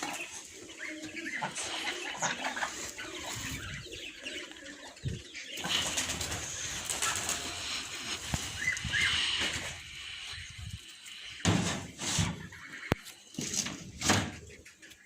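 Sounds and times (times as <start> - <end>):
bird calls: 0.0 - 15.0
wings flapping: 5.6 - 9.8.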